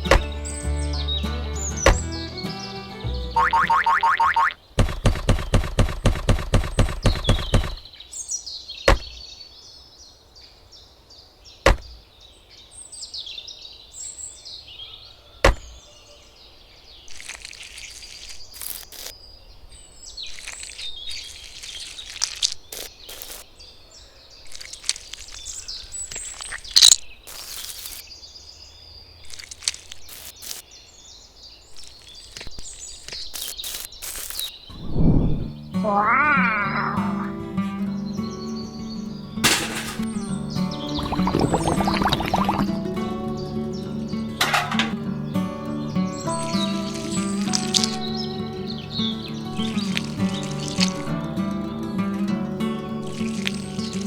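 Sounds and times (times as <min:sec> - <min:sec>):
birds chirping: 0:00.0 - 0:54.0
fast rattle of sharp taps: 0:04.8 - 0:07.8.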